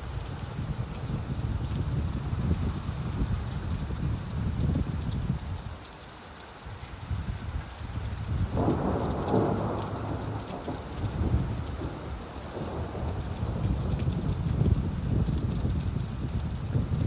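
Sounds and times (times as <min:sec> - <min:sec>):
steady rainfall: 0:00.0 - 0:17.0
rolling thunder: 0:08.3 - 0:17.0.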